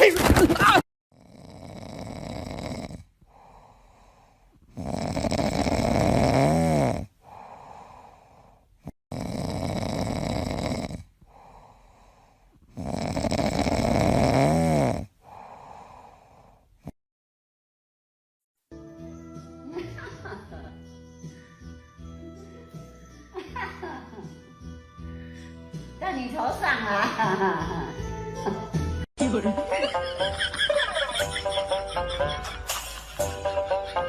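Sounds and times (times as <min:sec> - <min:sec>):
loud snoring: 0:01.1 - 0:17.0.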